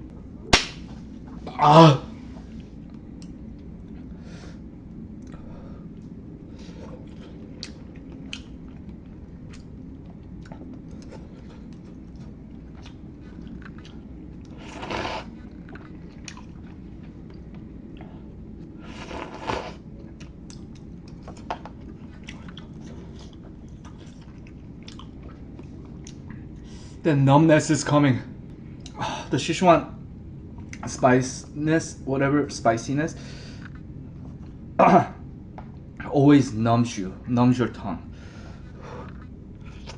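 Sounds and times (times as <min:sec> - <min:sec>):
person chewing noodles: 0:06.7 - 0:26.6, 0:38.7 - 0:39.9.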